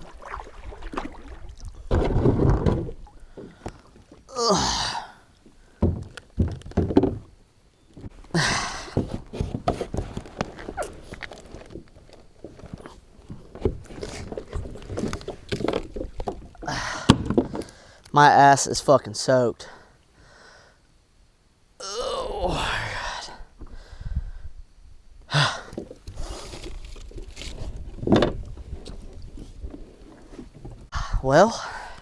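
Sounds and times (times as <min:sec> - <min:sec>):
water sloshing and splashing: 0:00.0 - 0:04.4, 0:08.9 - 0:18.0, 0:25.8 - 0:30.9
knocks against plastic hull: 0:01.9 - 0:03.0, 0:05.8 - 0:07.3.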